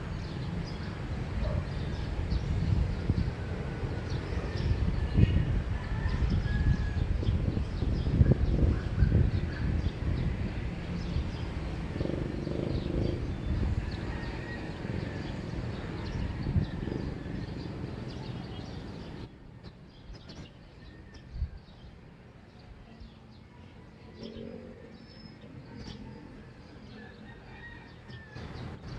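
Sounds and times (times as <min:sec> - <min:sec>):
small birds chirping: 0:07.2 - 0:28.9.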